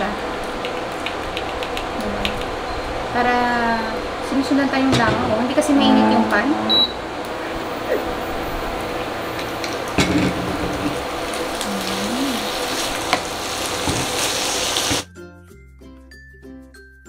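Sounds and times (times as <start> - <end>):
fish sizzling in a pan: 9.2 - 15.0.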